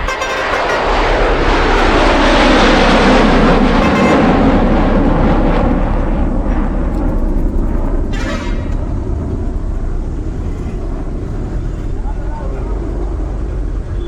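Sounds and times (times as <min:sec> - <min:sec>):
vehicle horn honking: 0:00.0 - 0:01.9, 0:03.7 - 0:04.7
truck rumbling on road: 0:00.0 - 0:14.0.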